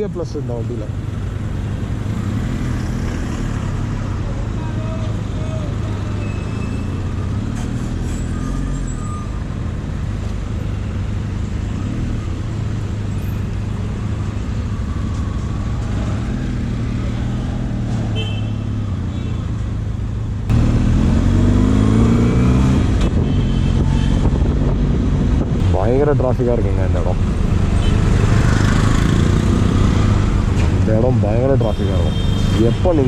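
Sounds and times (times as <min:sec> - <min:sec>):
city traffic noise: 0:00.0 - 0:33.0
motorcycle engine accelerating: 0:20.5 - 0:25.6.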